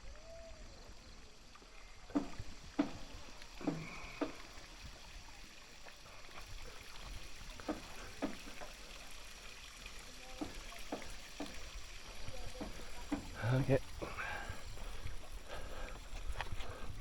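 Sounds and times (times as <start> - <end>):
faint steady hiss: 0.0 - 17.0
footsteps on stone steps: 5.8 - 9.0, 10.4 - 17.0.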